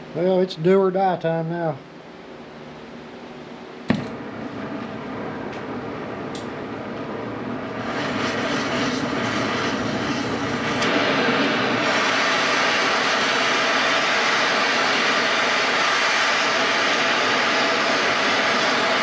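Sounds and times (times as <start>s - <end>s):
cutting torch hissing: 7.6s - 19.0s.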